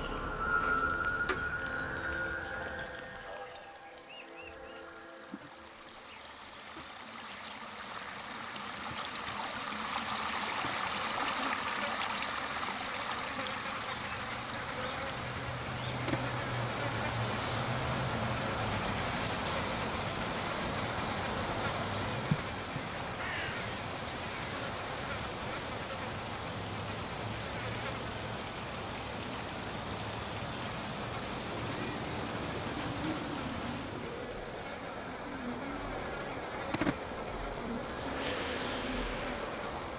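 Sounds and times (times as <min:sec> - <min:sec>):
flowing water hiss: 0:00.0 - 0:39.9
buzzing insects: 0:11.2 - 0:39.9.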